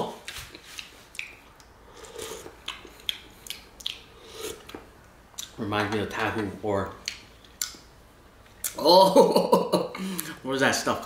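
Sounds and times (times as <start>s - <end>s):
person chewing wetly: 0.3s - 5.6s, 6.2s - 7.8s.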